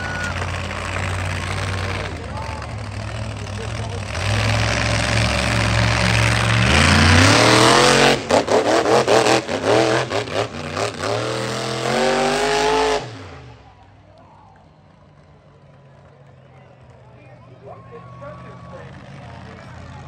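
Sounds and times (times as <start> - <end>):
monster truck engine revving: 0.0 - 14.1.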